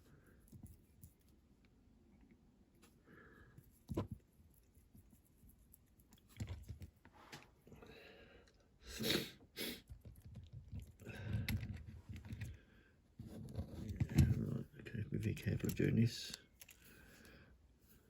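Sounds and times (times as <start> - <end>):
breathy sniffs: 8.9 - 9.9
tools handled on a workbench: 13.2 - 14.6.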